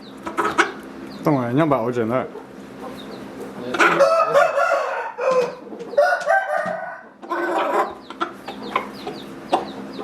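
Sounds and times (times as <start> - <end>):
roosters crowing: 2.7 - 10.0.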